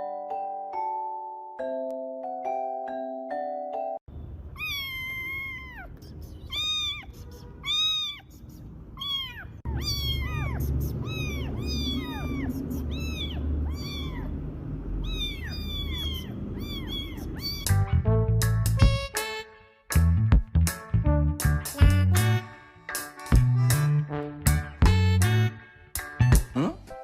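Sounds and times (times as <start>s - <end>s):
cat meowing: 4.5s - 17.8s.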